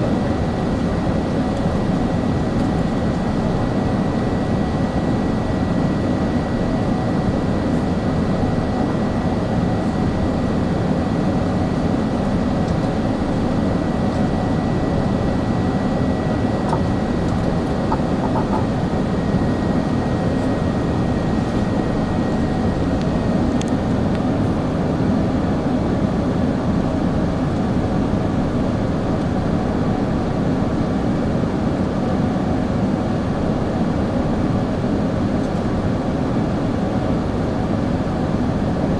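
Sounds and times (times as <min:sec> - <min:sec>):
jet engines rumbling: 0:00.0 - 0:25.2.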